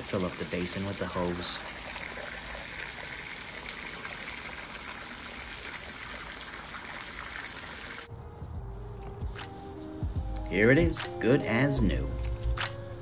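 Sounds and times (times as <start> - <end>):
water running from hose: 0.0 - 8.1
low music notes: 8.1 - 13.0.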